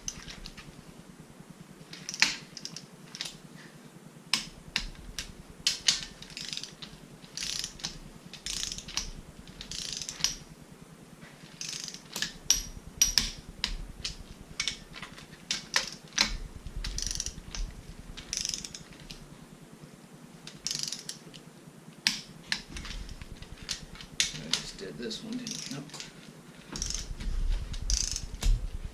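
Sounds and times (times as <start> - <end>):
ratchet wrench ratcheting: 1.9 - 3.4, 4.4 - 10.5, 11.5 - 19.2, 20.5 - 21.2, 22.0 - 24.8, 25.4 - 28.7.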